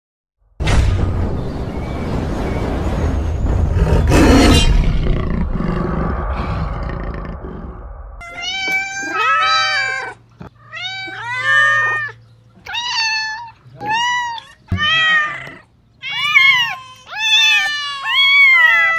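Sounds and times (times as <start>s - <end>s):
low rumble: 0.6s - 8.6s
whoosh: 0.6s - 8.6s
cat meowing: 8.2s - 18.9s.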